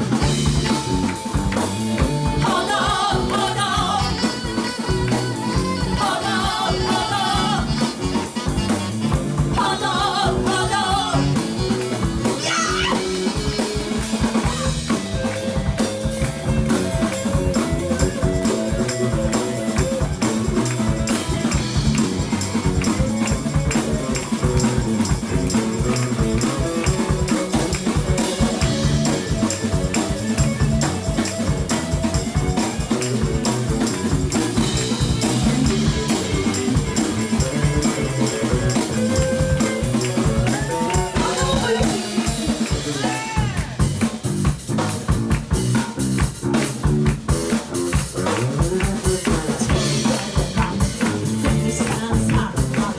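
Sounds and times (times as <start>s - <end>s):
drum kit beat: 0.0s - 52.9s.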